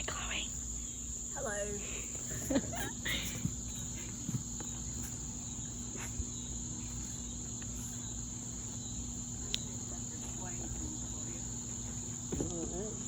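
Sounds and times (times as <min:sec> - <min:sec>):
insect chorus trilling: 0:00.0 - 0:13.0.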